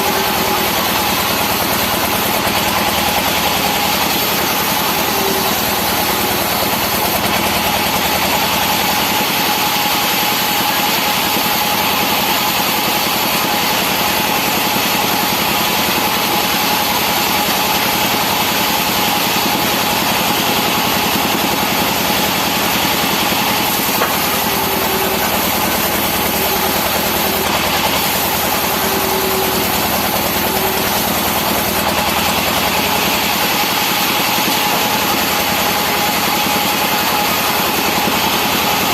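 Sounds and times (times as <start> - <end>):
sawmill machinery droning and whining: 0.0 - 38.9.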